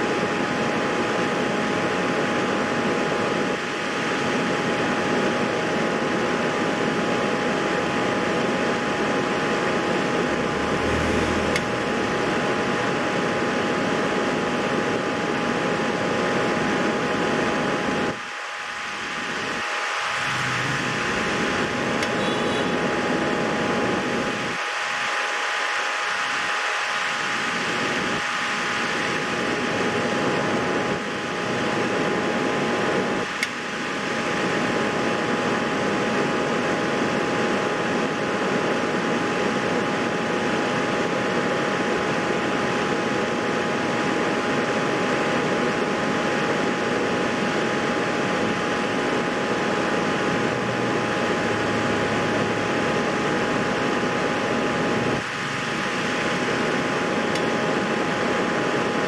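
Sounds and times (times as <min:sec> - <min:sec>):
constant hum tone: 0:00.0 - 0:59.0
machine fan whirring: 0:00.0 - 0:59.0
click: 0:11.5 - 0:11.8, 0:22.0 - 0:22.2, 0:33.4 - 0:33.6.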